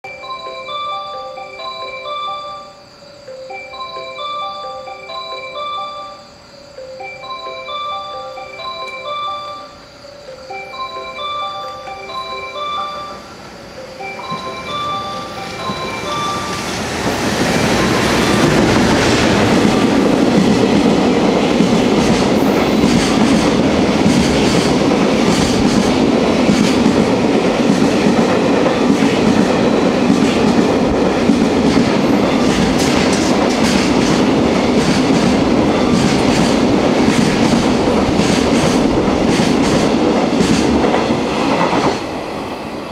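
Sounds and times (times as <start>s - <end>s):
train wheels rumbling on rails: 12.0s - 42.9s
clickety-clack over rail joints: 15.5s - 42.5s.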